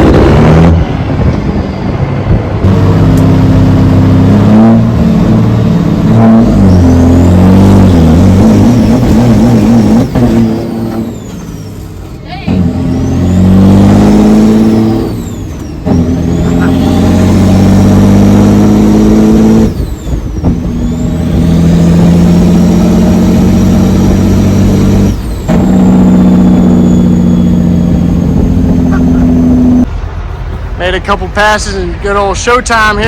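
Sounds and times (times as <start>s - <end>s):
diesel truck engine revving: 0.0s - 33.0s
turbo whistle: 26.6s - 28.0s.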